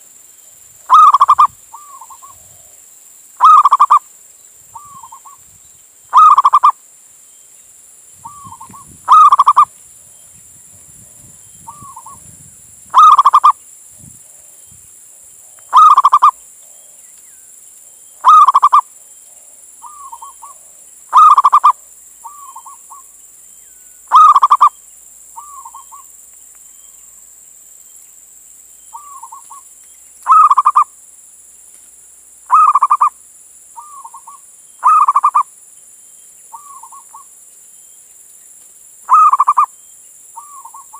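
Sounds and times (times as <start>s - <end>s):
dove cooing: 0.9s - 2.7s, 3.4s - 4.0s, 6.1s - 6.7s, 8.2s - 9.7s, 13.0s - 13.6s, 15.7s - 16.4s, 18.2s - 22.8s, 24.1s - 24.7s, 30.3s - 30.9s, 32.5s - 33.1s, 33.8s - 35.4s, 39.1s - 39.7s.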